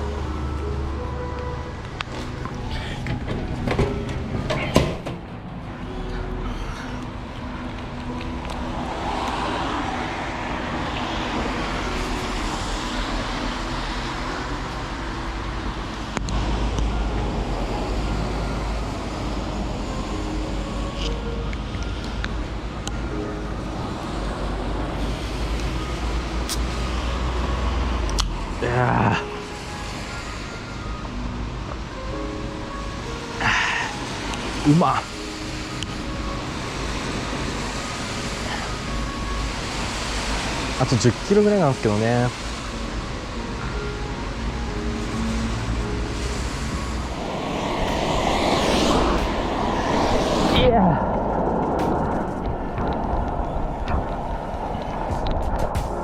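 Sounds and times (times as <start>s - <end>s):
wind and road noise: 0.0s - 56.0s
wind rushing over microphone: 45.1s - 56.0s.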